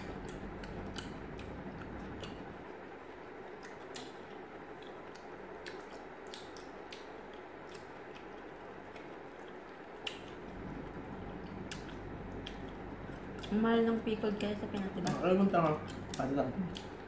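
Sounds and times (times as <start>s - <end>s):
chewing and biting pickles: 0.0s - 17.0s
steady low hiss: 0.0s - 17.0s
crisp mouth clicks: 0.1s - 2.5s, 3.6s - 10.4s, 11.5s - 13.6s.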